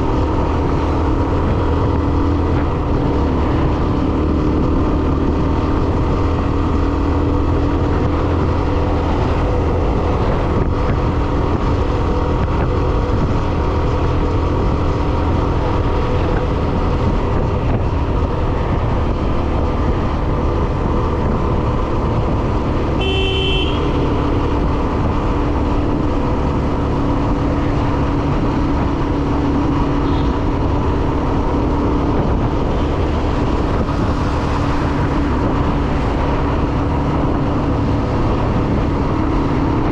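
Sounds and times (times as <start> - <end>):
motorcycle engine running: 0.0 - 39.9
road and wind rumble: 0.0 - 39.9
short horn beep: 23.0 - 24.1.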